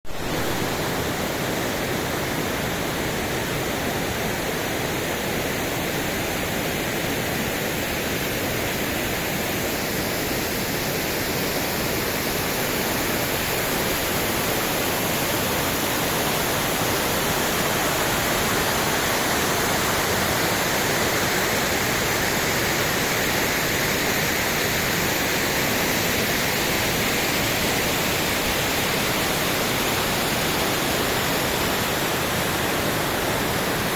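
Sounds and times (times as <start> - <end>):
waterfall crashing: 7.5 - 33.9.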